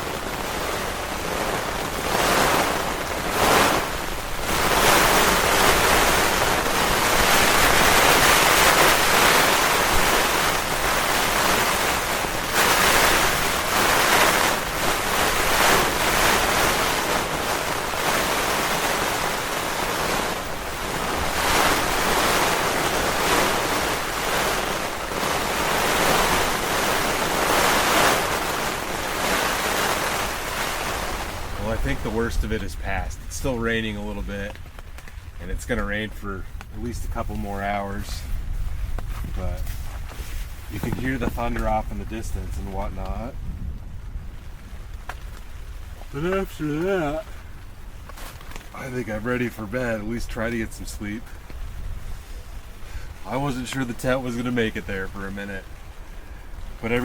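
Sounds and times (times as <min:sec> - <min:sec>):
rain and wind beating on tent: 0:00.0 - 0:57.0.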